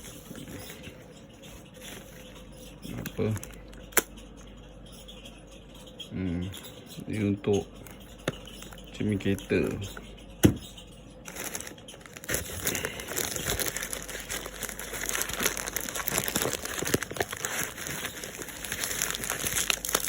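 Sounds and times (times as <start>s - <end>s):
packaging crinkling: 11.3s - 20.0s.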